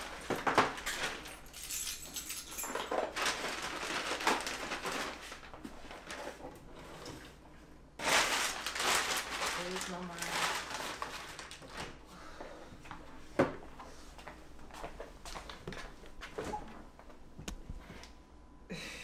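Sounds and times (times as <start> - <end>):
plastic bag rustling: 0.0 - 6.8, 8.0 - 12.0.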